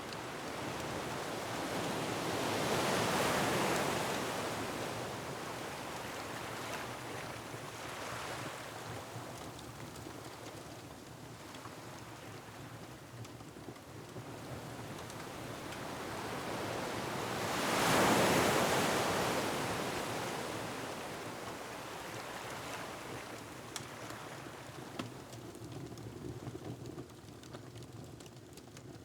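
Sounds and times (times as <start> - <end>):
wood fire crackles: 4.0 - 16.7, 21.6 - 29.0.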